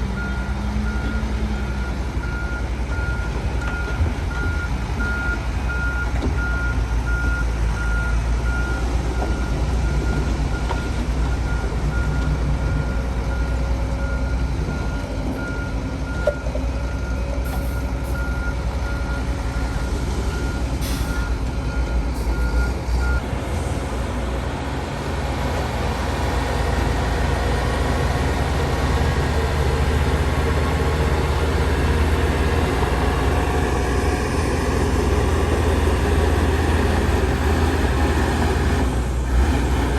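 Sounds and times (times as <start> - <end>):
heavy diesel machinery running: 0.0 - 39.9
reversing alarm beeping: 0.2 - 23.2.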